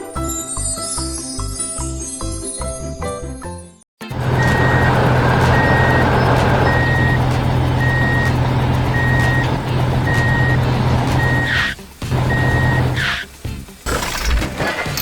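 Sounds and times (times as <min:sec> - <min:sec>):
truck engine running: 0:04.0 - 0:13.5
reversing alarm beeping: 0:04.2 - 0:13.0.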